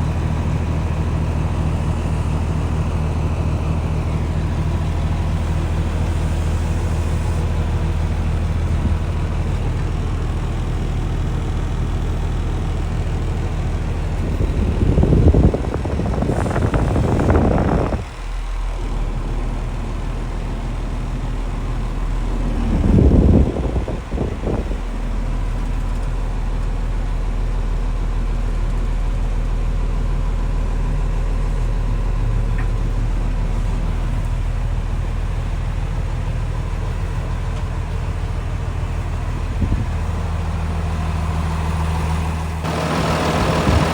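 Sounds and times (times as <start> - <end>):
diesel truck engine idling: 0.0 - 43.9
bursts of rushing noise: 42.6 - 43.9.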